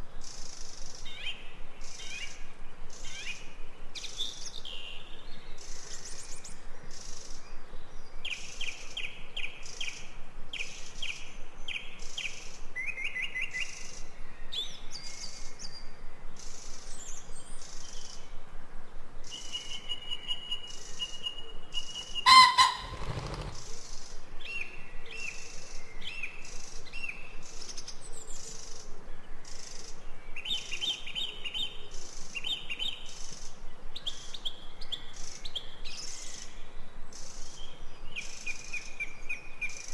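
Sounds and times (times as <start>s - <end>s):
forest birds chirping: 19.3s - 23.7s.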